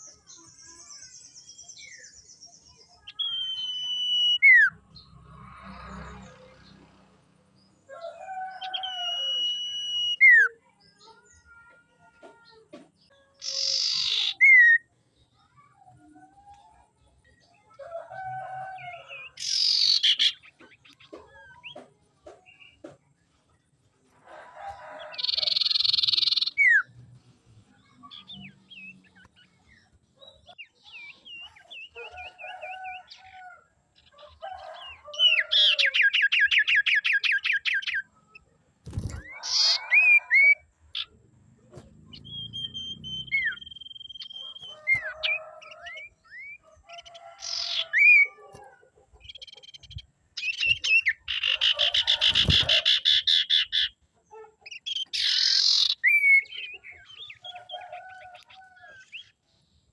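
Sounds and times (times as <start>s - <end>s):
bird trill: 0.0s - 5.1s, 8.5s - 10.6s, 13.3s - 14.8s, 25.0s - 26.9s, 30.2s - 41.2s, 42.1s - 48.4s, 54.6s - 59.4s
long level bird whistle: 3.0s - 4.8s, 8.8s - 10.4s, 42.3s - 44.7s
bird harsh rasping calls: 13.4s - 14.7s, 39.2s - 41.2s, 50.4s - 59.3s.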